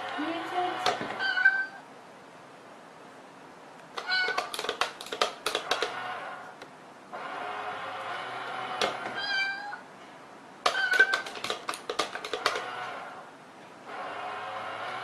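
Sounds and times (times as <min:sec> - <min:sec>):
cat meowing: 0:01.2 - 0:01.9, 0:04.0 - 0:04.6, 0:09.2 - 0:09.9, 0:10.7 - 0:11.3
sharp clicks: 0:03.8 - 0:06.0, 0:10.6 - 0:12.7.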